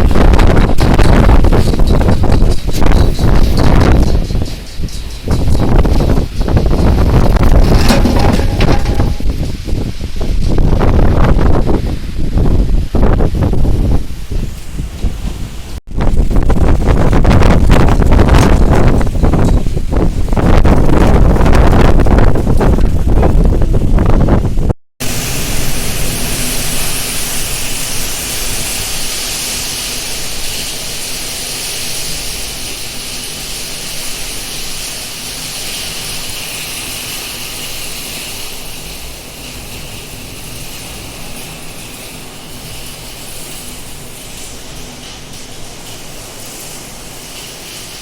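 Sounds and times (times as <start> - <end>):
wind rumble on microphone: 0.0 - 29.7
heavy rain pouring: 0.0 - 48.0.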